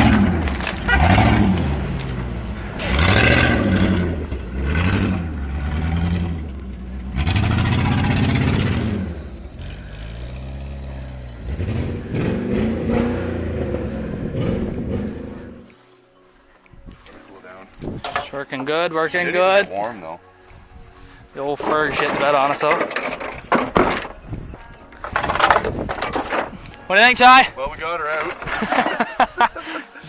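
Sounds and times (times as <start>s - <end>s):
truck engine revving: 0.0s - 15.7s.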